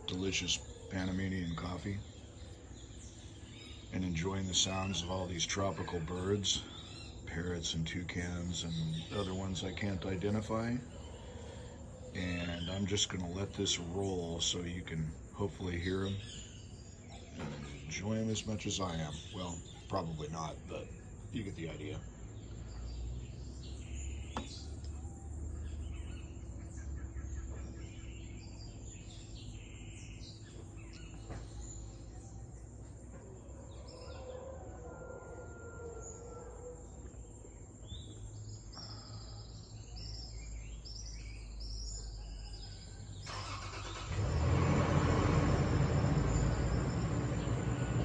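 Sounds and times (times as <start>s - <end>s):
tropical birds calling: 0.0s - 48.0s
car engine and tyre noise: 43.3s - 48.0s.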